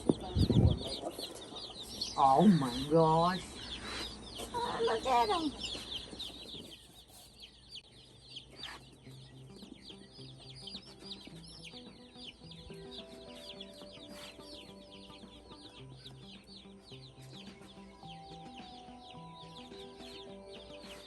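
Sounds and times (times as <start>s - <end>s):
chicks peeping: 0.0s - 21.0s
background music: 7.8s - 21.0s.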